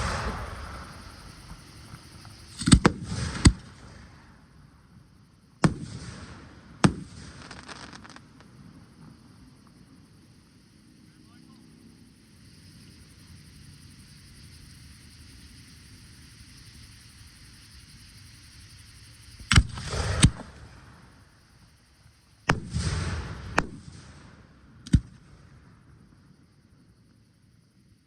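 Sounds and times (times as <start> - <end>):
fireworks bangs: 0.0 - 4.4, 5.6 - 9.1, 19.4 - 21.2, 22.5 - 25.8
fireworks hissing crackle: 0.0 - 11.4, 13.6 - 27.2.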